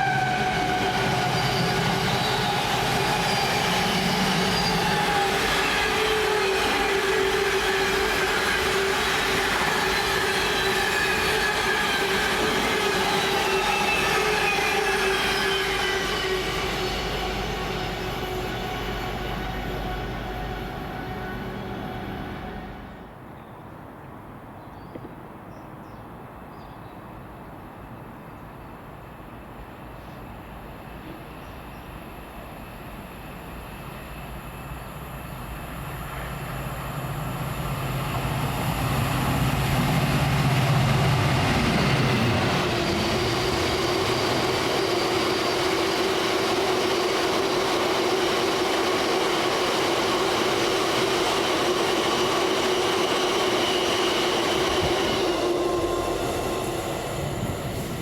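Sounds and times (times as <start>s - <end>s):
train passing rumble: 0.0s - 23.3s, 28.2s - 58.0s.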